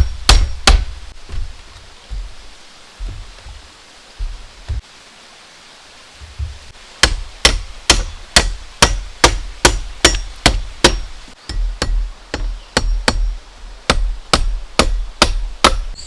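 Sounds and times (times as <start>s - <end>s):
soft dull thuds: 0.0s - 4.8s, 6.2s - 13.3s.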